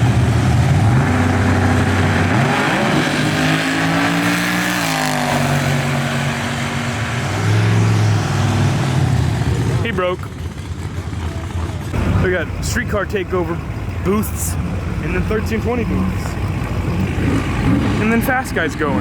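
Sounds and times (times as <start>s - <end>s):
drag car engine running hard: 0.0s - 19.0s.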